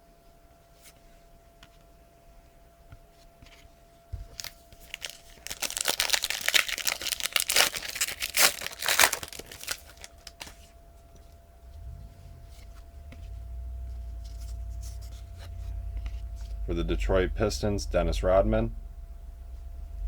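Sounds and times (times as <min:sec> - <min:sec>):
wrapper tearing and crinkling: 0:04.3 - 0:10.7.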